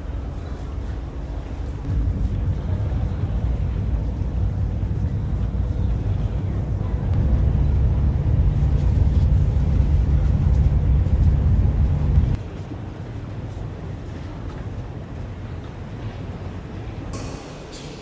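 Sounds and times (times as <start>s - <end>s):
low rumble of moving vehicle: 0.0s - 12.4s.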